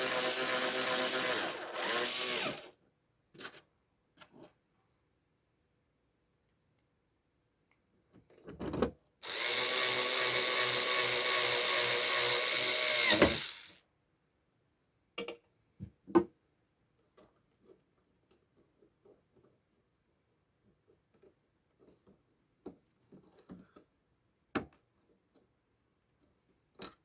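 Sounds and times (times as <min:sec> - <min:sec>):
electric screwdriver motor: 0:00.0 - 0:02.7, 0:09.2 - 0:13.8.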